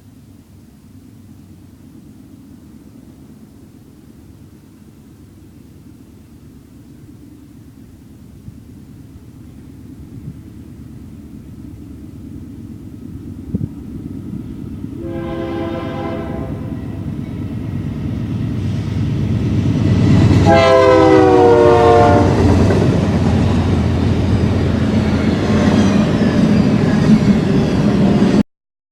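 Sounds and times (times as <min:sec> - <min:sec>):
train rumbling by: 0:00.0 - 0:28.4
locomotive horn blasts: 0:15.0 - 0:17.1, 0:20.4 - 0:22.5.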